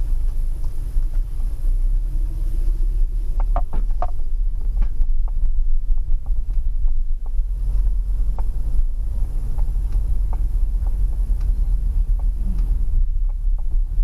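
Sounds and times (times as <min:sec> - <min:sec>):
steady low rumble: 0:00.0 - 0:14.0
faint clicks: 0:03.4 - 0:14.0.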